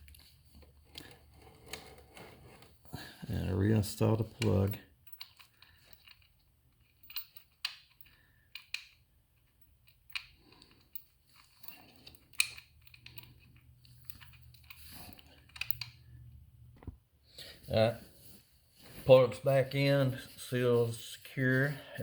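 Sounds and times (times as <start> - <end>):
hands clicking on metal parts: 4.1 - 16.0.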